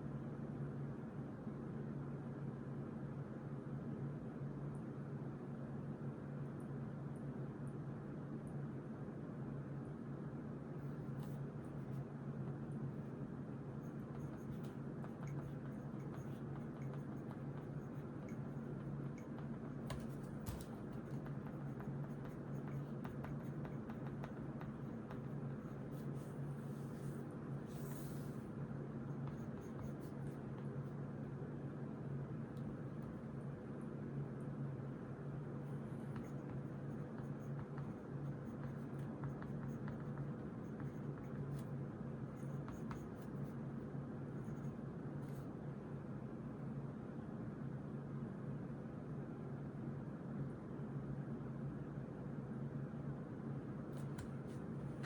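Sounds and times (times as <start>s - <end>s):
steady low hum: 9.3s - 55.0s
pen scratching on paper: 13.8s - 28.4s, 29.1s - 31.0s, 35.8s - 41.7s, 42.3s - 43.6s.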